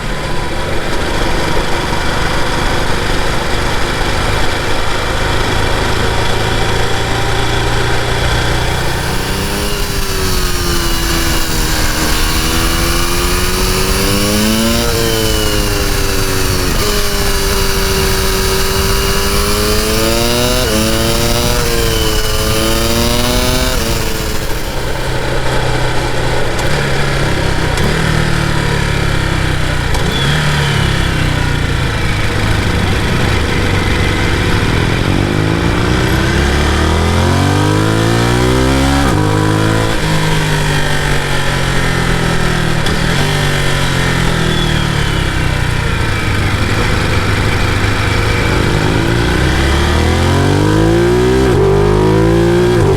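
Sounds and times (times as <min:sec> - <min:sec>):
motorcycle engine accelerating: 0:00.0 - 0:52.9
riding noise rushing: 0:08.3 - 0:26.4.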